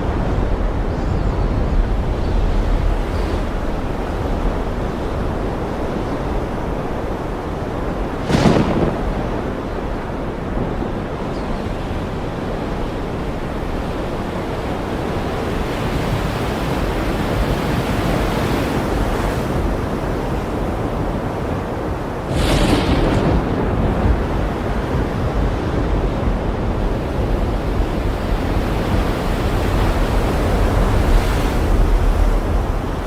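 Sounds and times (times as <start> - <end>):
ocean surf rushing: 0.0 - 33.0
wave crash: 7.0 - 11.2, 22.2 - 33.0.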